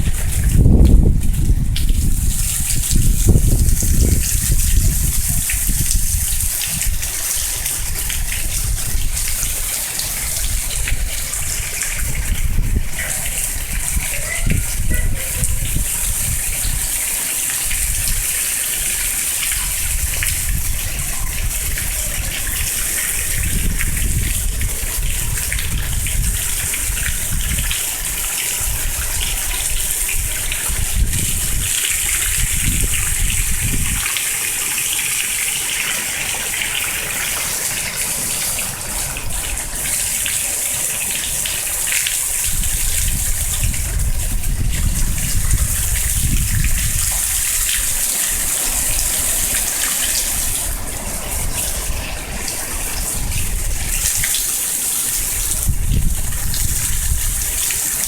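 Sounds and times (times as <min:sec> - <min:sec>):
running splashing water: 0:00.0 - 0:58.0
steady rain: 0:00.0 - 0:58.0
wind gusts buffeting microphone: 0:00.0 - 0:58.0.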